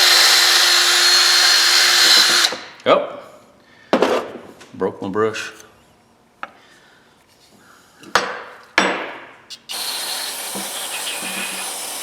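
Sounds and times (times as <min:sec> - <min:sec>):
aerosol spray hissing: 0:09.5 - 0:12.0.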